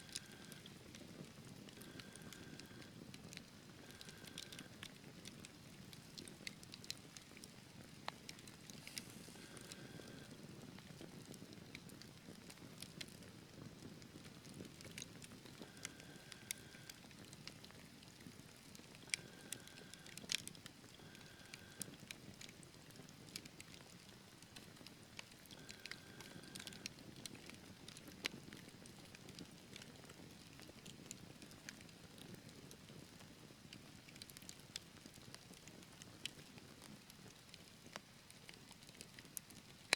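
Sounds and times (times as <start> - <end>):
logs crackling and popping: 0.0 - 39.9.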